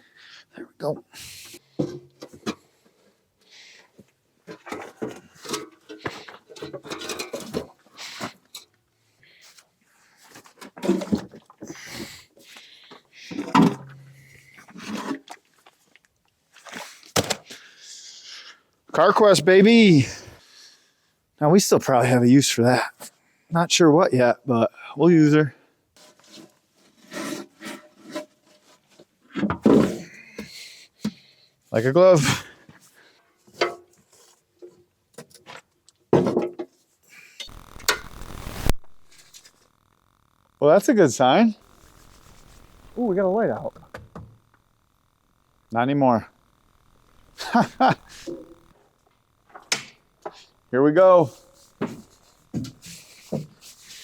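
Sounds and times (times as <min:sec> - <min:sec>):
battery knocks and clunks: 0:43.8 - 0:44.6.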